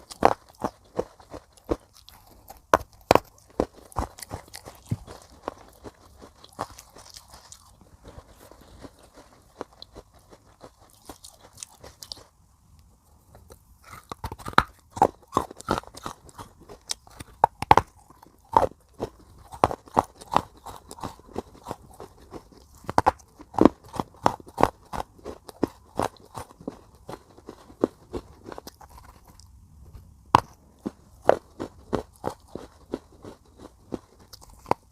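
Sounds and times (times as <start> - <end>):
chewing crunches: 0.0 - 12.4, 13.3 - 29.6, 30.4 - 34.9.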